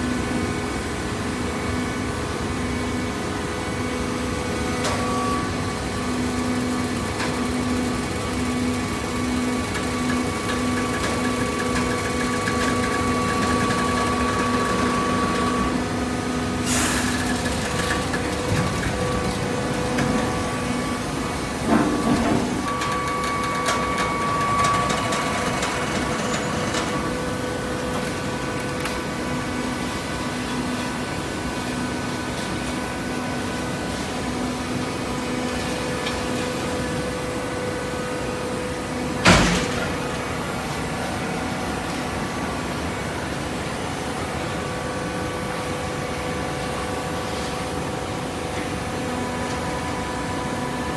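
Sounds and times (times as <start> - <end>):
baler machine hum: 4.4 - 30.1
loud metal clank: 39.2 - 40.2.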